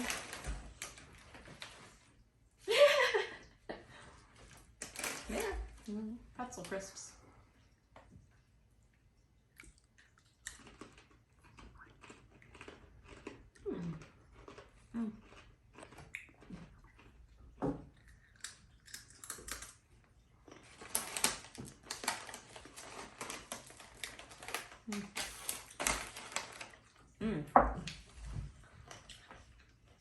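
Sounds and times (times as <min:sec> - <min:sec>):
people crunching crisps: 0:00.0 - 0:02.0, 0:04.4 - 0:05.9, 0:09.6 - 0:27.2.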